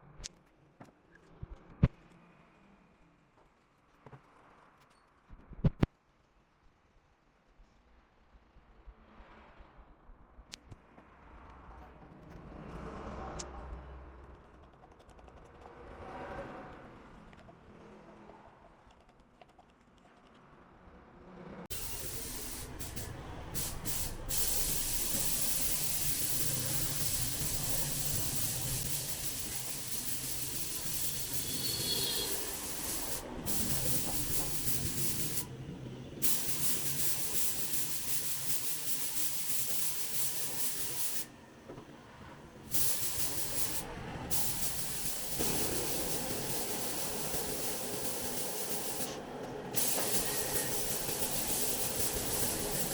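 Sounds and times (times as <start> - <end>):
paint spray hissing: 21.7 - 35.5, 36.2 - 41.3, 42.7 - 52.9.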